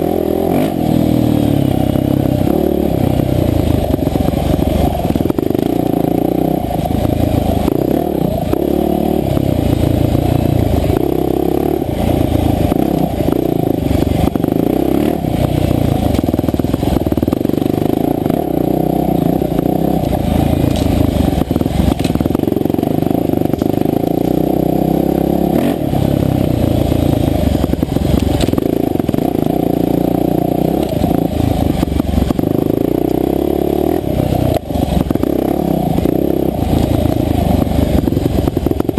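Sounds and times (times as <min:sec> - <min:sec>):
dirt bike engine revving: 0:00.0 - 0:38.9
knocks and clatter: 0:20.6 - 0:22.5.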